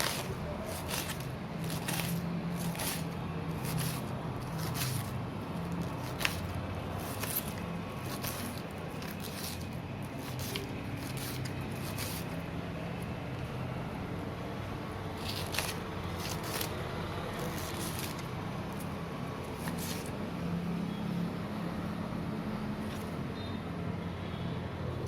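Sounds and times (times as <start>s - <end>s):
kitchen utensils scraping and clicking: 0.0s - 12.4s, 15.2s - 16.8s, 17.4s - 18.9s.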